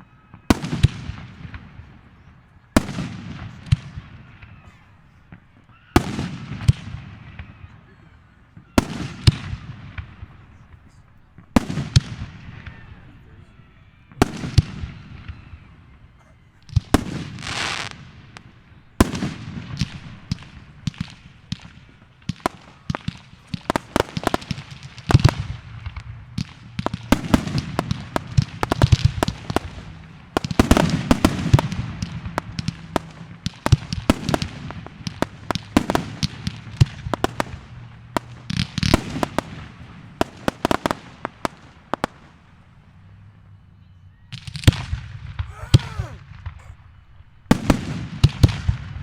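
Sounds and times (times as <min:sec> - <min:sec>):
fireworks crackling: 0:00.0 - 0:13.0, 0:14.0 - 0:43.6, 0:44.3 - 0:49.0.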